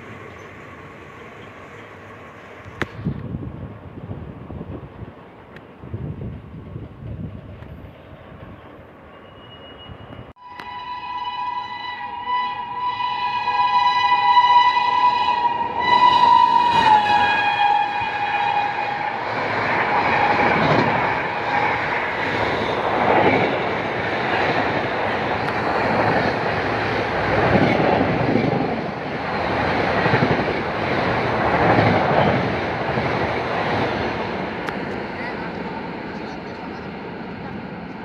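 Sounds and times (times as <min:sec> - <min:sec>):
locomotive horn: 0:10.4 - 0:19.3
train coaches clattering on rails: 0:15.8 - 0:38.0.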